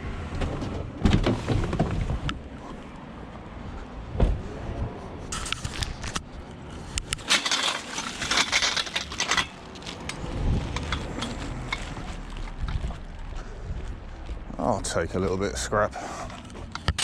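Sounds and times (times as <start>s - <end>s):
metal rattling and scraping: 5.3s - 17.0s
scrap metal clinking: 7.1s - 12.6s.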